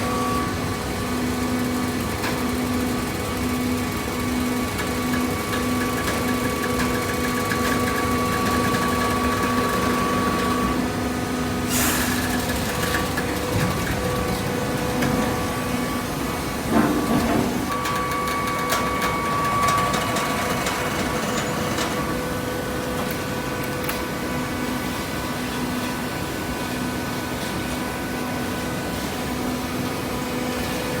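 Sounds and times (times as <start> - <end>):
machine clatter: 4.5 - 10.5, 11.7 - 15.4, 16.6 - 22.3.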